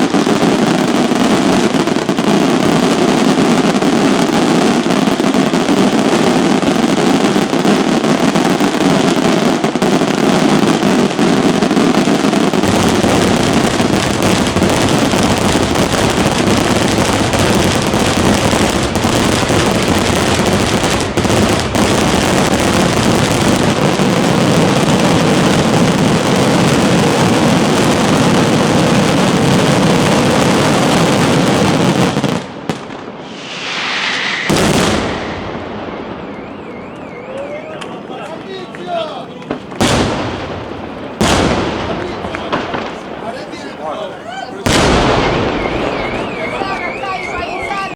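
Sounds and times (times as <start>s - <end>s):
fireworks bursting and crackling: 0.0s - 47.9s.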